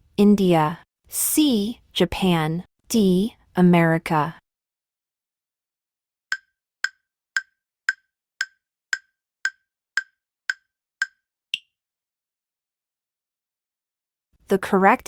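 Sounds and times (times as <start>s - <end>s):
wooden-sounding timer ticks: 6.3s - 11.7s.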